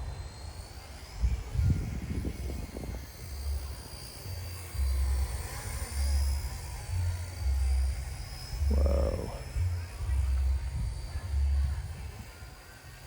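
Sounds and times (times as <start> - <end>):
model helicopter rotor whine: 0.0 - 13.0
wind buffeting microphone: 1.2 - 3.7.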